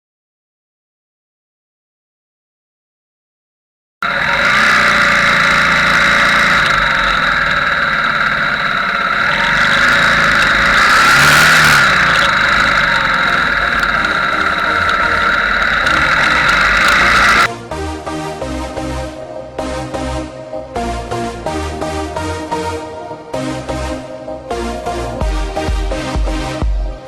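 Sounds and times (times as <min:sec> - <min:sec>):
motorbike engine running: 0:04.0 - 0:17.5.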